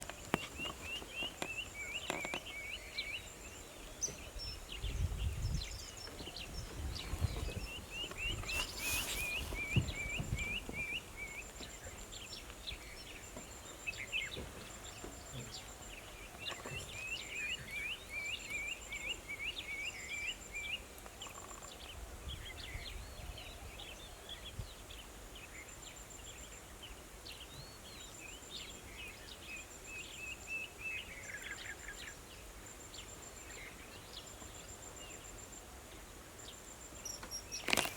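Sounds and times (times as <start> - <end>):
bird chirping: 0.0 - 23.9.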